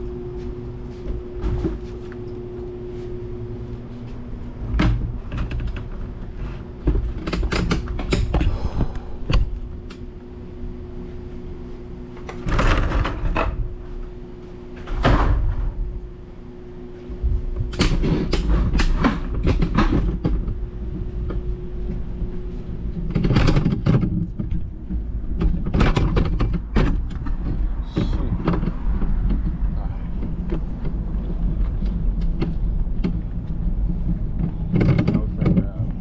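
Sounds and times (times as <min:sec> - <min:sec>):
mechanical hum: 0:00.0 - 0:36.0
knocks and rattles: 0:17.2 - 0:36.0.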